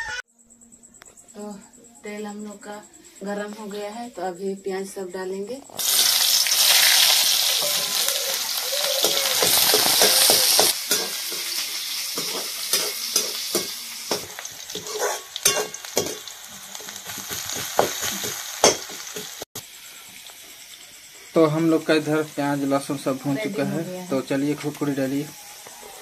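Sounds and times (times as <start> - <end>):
onions sizzling in hot oil: 5.7 - 26.0
spatula scraping pan: 7.6 - 19.3.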